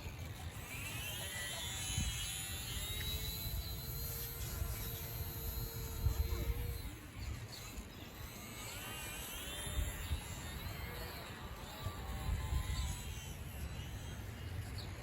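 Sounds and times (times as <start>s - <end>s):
electric model airplane motor whining: 0.0s - 15.0s
wind rumble on microphone: 1.6s - 7.9s, 9.4s - 15.0s.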